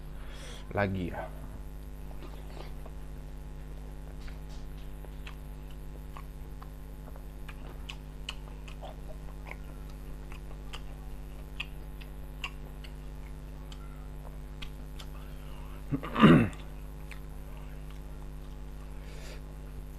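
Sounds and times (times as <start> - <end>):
low electrical hum: 0.0 - 19.9
wet mouth chewing clicks: 5.0 - 15.3, 16.5 - 18.6.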